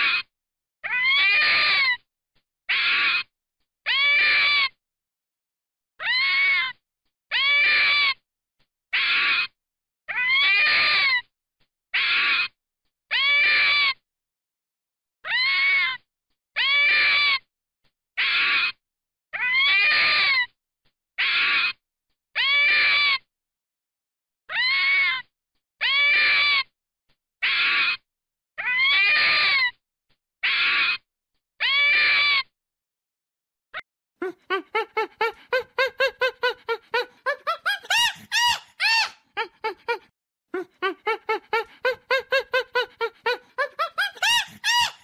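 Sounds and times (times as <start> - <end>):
short high-pitched animal calls: 34.2 - 40.0, 40.6 - 45.0.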